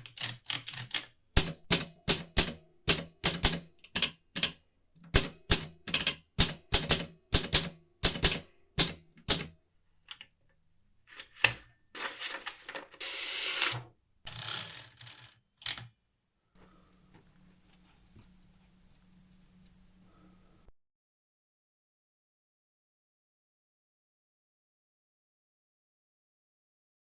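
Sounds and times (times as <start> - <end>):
typewriter key strikes: 0.0 - 9.5.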